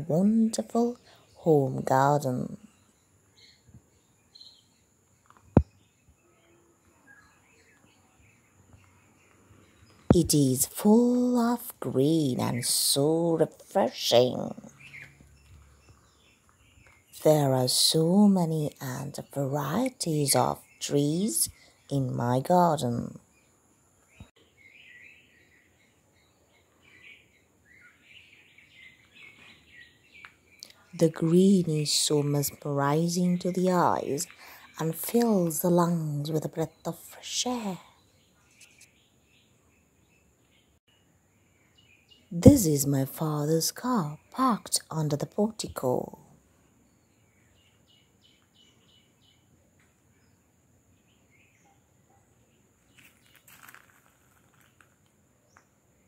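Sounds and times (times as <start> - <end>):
small birds chirping faintly: 0.0 - 56.0.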